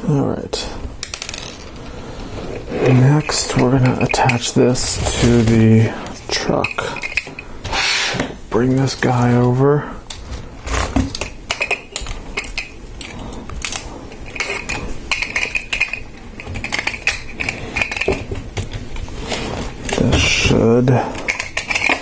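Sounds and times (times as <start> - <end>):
plastic parts clattering and clicking: 1.0 - 1.9, 9.4 - 22.0
plastic scraping: 1.3 - 8.4, 9.3 - 22.0.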